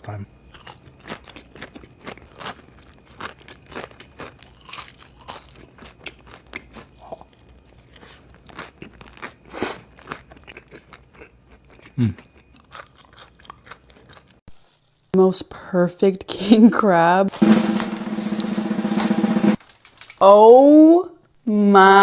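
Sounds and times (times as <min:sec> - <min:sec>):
crunching and chewing crispy food: 0:00.1 - 0:14.9, 0:19.6 - 0:20.2.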